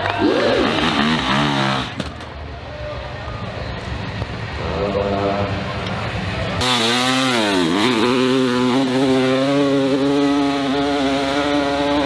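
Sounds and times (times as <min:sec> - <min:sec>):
dirt bike engine revving: 0:00.0 - 0:02.2, 0:06.6 - 0:12.0.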